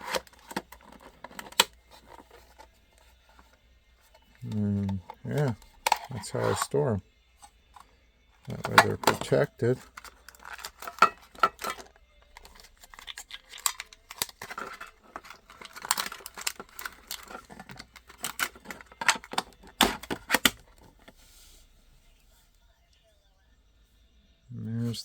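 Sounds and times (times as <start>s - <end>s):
toy car knocks and rattles: 7.7s - 21.0s
plastic packaging crinkling: 8.5s - 21.0s.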